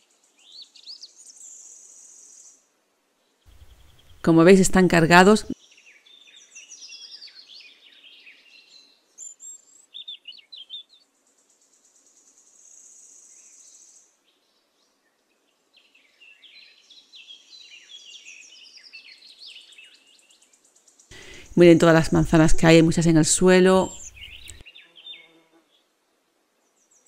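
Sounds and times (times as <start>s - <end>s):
small birds chirping: 0.0s - 2.7s, 3.3s - 25.9s
high bird trill: 21.1s - 24.6s.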